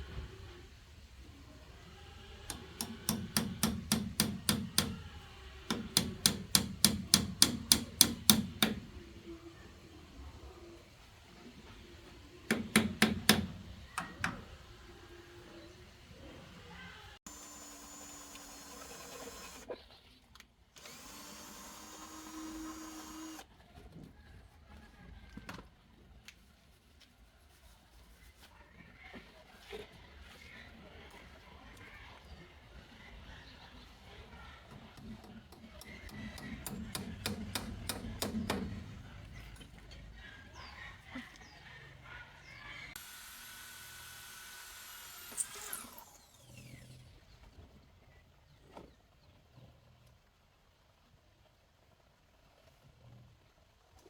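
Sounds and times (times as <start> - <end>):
power tool motor running: 17.3 - 19.6, 20.8 - 23.4, 43.0 - 47.1.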